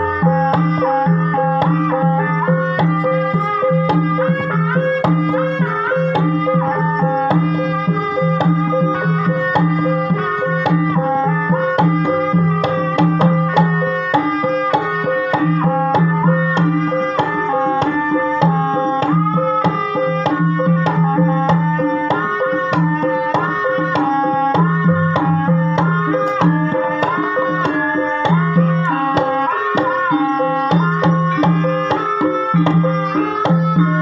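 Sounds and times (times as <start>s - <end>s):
hand drum strokes: 0.0s - 34.0s
struck ringing melody notes: 0.0s - 34.0s.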